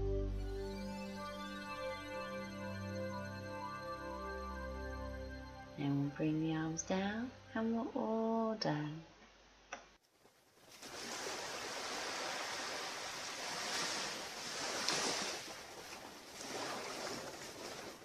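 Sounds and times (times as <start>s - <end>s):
waves breaking on beach: 10.6s - 18.0s.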